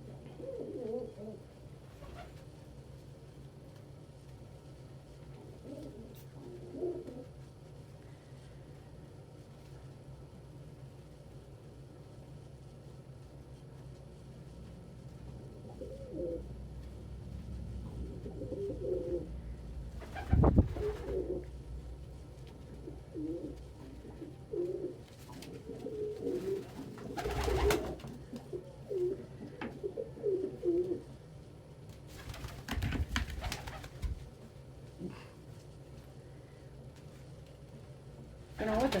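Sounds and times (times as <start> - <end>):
pigeons cooing: 0.1 - 1.5, 5.6 - 7.4, 15.6 - 16.5, 17.9 - 21.7, 22.6 - 31.1
knocks or wing flaps: 20.0 - 21.3, 26.4 - 28.1, 32.1 - 34.3.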